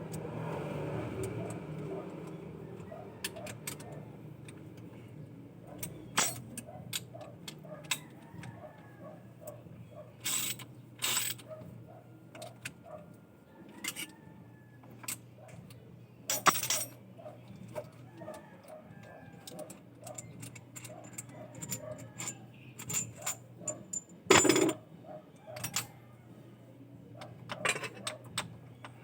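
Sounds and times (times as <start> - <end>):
metallic clicks and clanks: 5.7 - 8.6, 17.6 - 24.8, 27.2 - 29.0.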